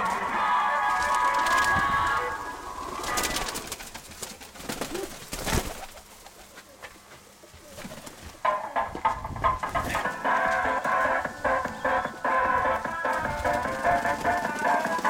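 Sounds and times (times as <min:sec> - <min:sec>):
background music: 0:00.0 - 0:03.6, 0:08.4 - 0:15.0
pigeons cooing: 0:00.0 - 0:04.0, 0:04.6 - 0:06.9, 0:07.5 - 0:15.0.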